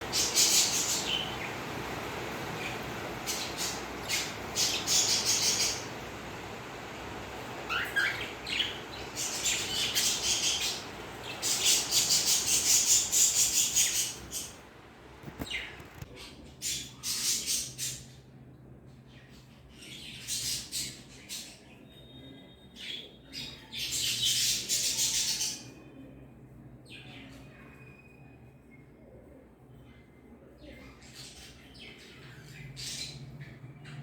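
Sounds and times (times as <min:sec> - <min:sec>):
cockatiels chirping and squawking: 0:02.5 - 0:06.2, 0:07.4 - 0:14.6, 0:15.2 - 0:17.7.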